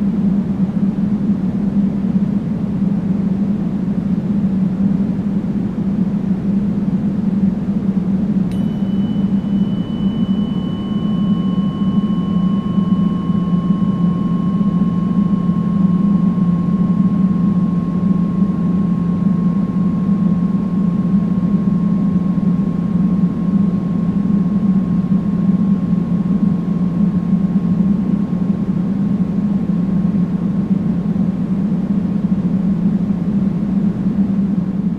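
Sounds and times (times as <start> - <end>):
deep steady pink noise: 0.0 - 34.9
chime tones ringing: 8.5 - 18.1.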